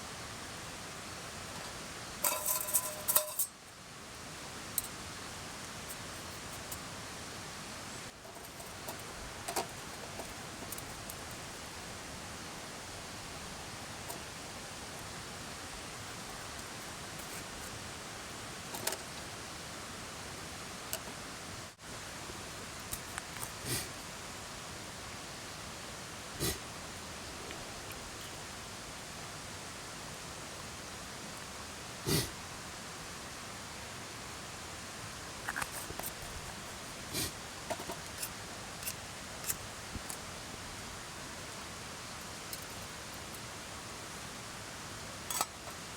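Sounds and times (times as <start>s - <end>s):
mountain stream rushing: 0.0s - 45.9s
cookware clicking and knocking: 2.2s - 3.5s.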